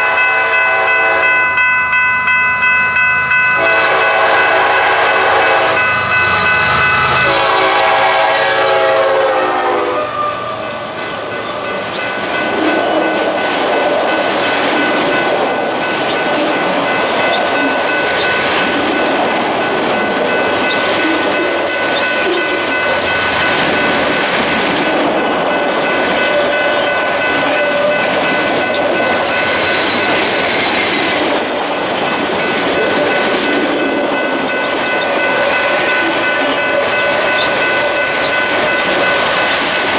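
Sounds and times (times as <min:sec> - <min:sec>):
locomotive horn: 0:00.0 - 0:01.4, 0:03.6 - 0:10.8
train cars rumbling: 0:00.0 - 0:39.9
wheels ringing on rails: 0:00.0 - 0:39.9
wheels clickety-clack: 0:10.8 - 0:39.9.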